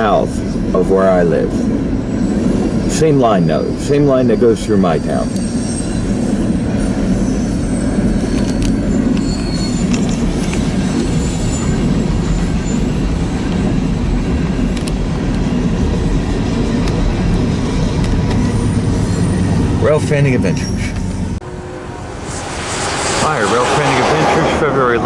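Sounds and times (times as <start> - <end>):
freight train rumbling on rails: 0.0 - 25.0
faint wheel squeal: 2.1 - 12.9, 18.4 - 21.4.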